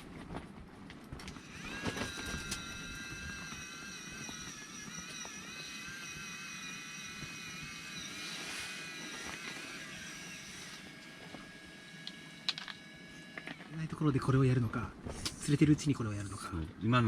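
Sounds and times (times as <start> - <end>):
fishing reel motor whining: 1.3 - 13.8.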